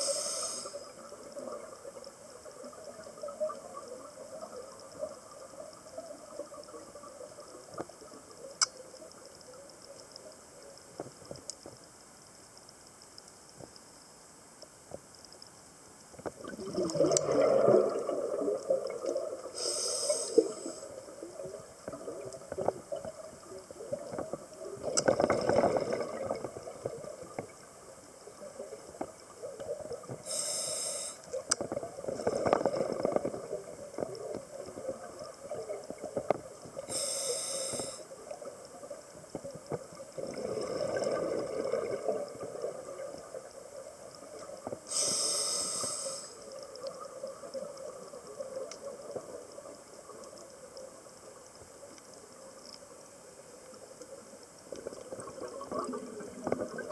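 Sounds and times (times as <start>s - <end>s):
diver inhaling through regulator: 0.0s - 0.9s, 19.6s - 20.9s, 30.3s - 31.2s, 36.9s - 38.1s, 44.9s - 46.4s
exhaled bubbles gurgling: 0.0s - 8.4s, 16.2s - 51.4s, 54.7s - 56.9s.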